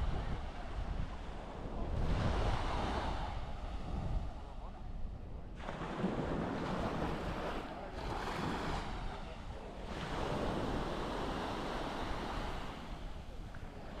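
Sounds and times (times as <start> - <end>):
small waves breaking on beach: 0.0 - 4.8, 5.4 - 14.0
wind rumbling on microphone: 0.0 - 14.0.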